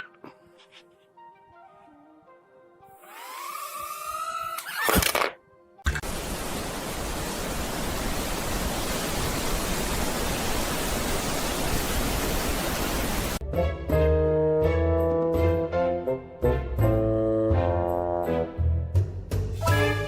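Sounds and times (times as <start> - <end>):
background music with sustained notes: 0.0 - 6.0, 13.4 - 20.0.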